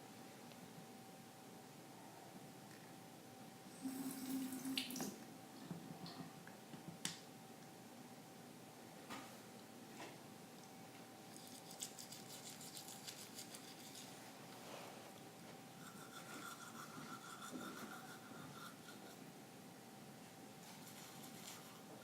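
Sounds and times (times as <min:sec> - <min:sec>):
toothbrush scrubbing teeth: 0:11.3 - 0:14.2, 0:15.8 - 0:19.2, 0:20.6 - 0:21.9.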